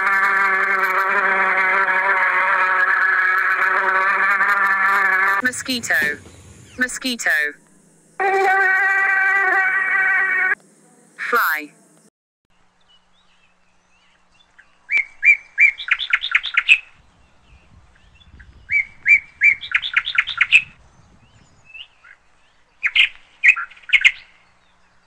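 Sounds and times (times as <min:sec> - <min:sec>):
songbird singing: 0:05.0 - 0:25.0.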